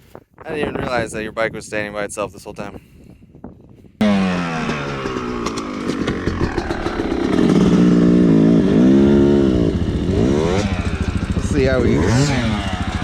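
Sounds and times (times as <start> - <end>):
dirt bike engine revving: 4.0 - 13.0.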